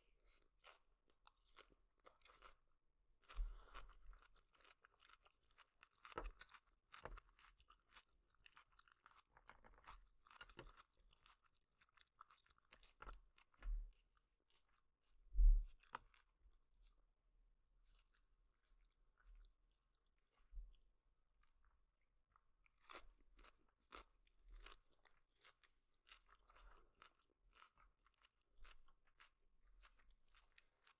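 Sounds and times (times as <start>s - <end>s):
person chewing noodles: 0.3s - 2.6s, 3.2s - 13.6s, 22.7s - 30.9s.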